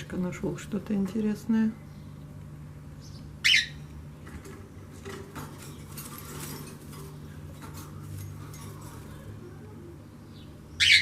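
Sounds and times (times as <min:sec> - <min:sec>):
small bird chirping: 0:01.8 - 0:03.9, 0:10.2 - 0:11.0.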